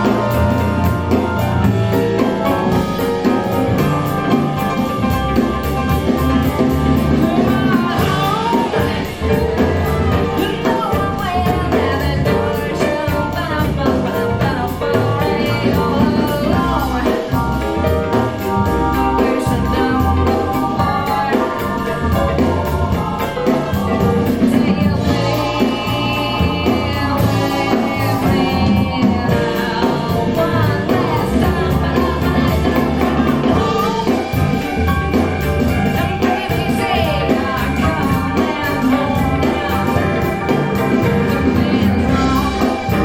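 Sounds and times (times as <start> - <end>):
music with singing over speakers: 0.0 - 43.0.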